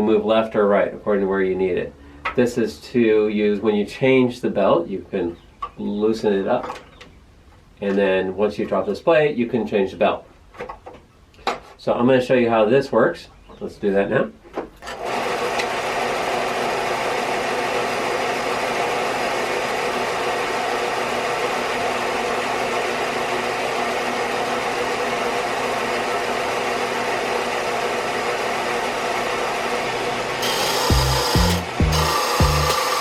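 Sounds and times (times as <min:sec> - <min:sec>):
belt sander motor humming: 0:15.0 - 0:33.0.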